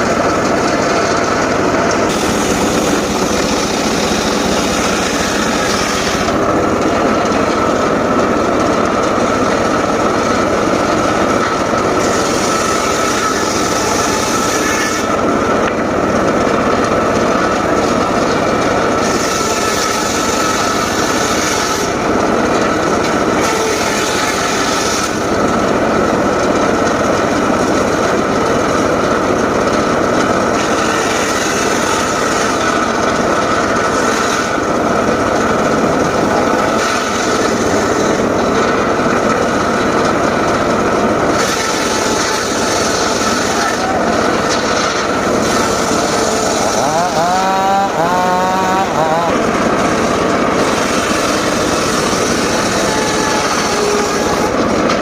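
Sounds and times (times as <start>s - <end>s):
circular saw whine: 0.0s - 55.0s
blade hissing through wood: 2.1s - 6.4s.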